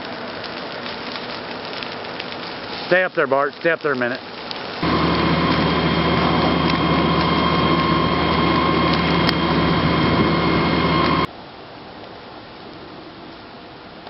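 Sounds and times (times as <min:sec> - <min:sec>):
machine whine over low hum: 0:04.8 - 0:11.3.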